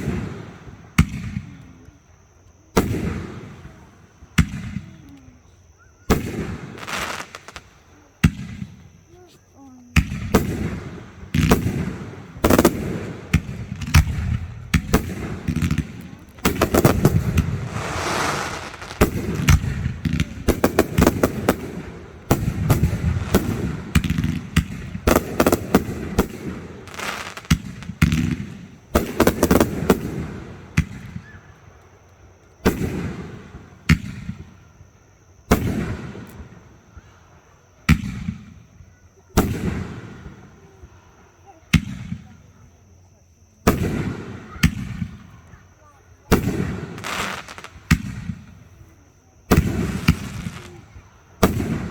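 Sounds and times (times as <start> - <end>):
fireworks crackling: 6.6 - 7.7, 14.8 - 28.1, 46.9 - 47.8
firework shells bursting: 16.4 - 25.7.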